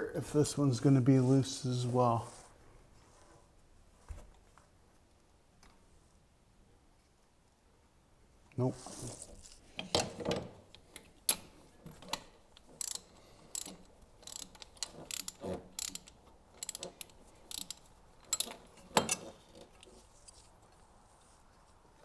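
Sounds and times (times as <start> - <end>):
ratchet wrench clicking: 12.1 - 18.6.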